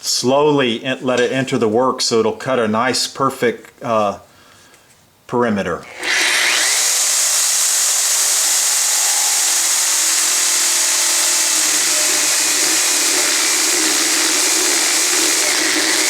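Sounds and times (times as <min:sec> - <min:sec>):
power drill boring into wood: 0:05.8 - 0:16.0.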